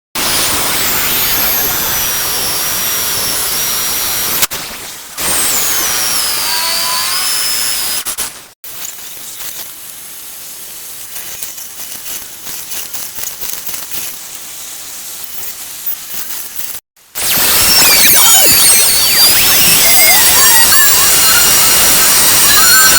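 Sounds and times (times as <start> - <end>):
electric drill boring into wood: 0.2 - 4.5, 5.2 - 8.4, 17.2 - 22.9
rough cutting noise: 0.2 - 4.6, 5.2 - 9.8, 16.5 - 22.9.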